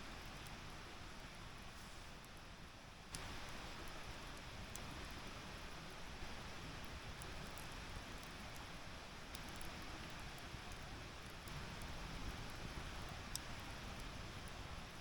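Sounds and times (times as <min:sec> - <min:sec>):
wood fire hissing and crackling: 0:00.0 - 0:15.0.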